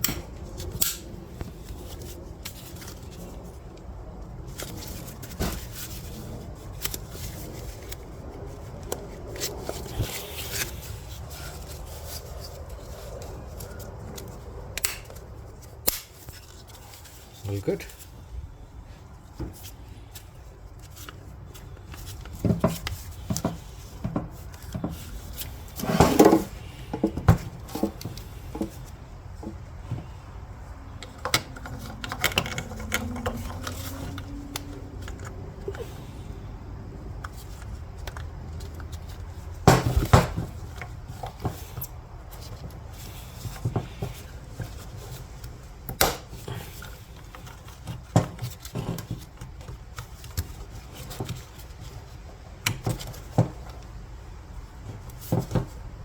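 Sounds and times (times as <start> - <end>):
tools clicking and knocking: 31.0 - 35.7.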